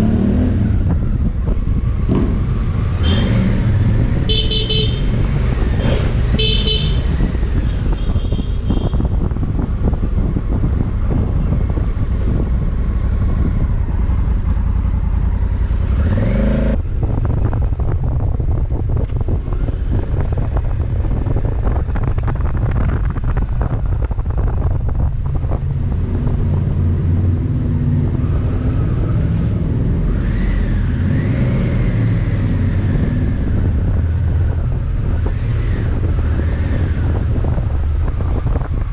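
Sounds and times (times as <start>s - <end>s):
wind noise on microphone: 0.0s - 38.9s
motorcycle engine running: 0.7s - 19.6s.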